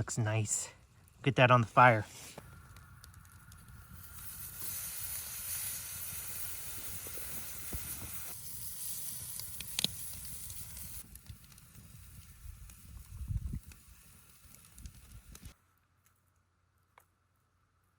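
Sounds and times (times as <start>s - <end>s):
sharp pops: 1.9s - 11.6s
steak sizzling on grill: 3.2s - 15.6s.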